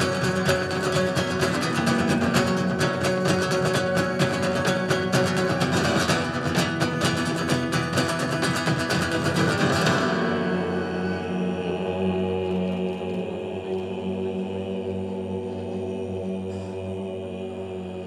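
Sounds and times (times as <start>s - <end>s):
acoustic guitar strumming: 0.0s - 13.6s.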